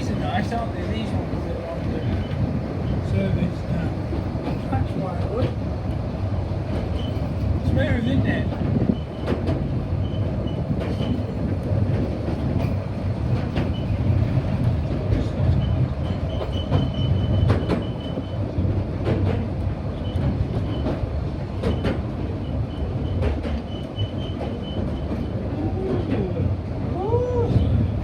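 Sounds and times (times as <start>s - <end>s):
train rumble: 0.0s - 28.0s
high wheel squeal: 22.4s - 25.3s.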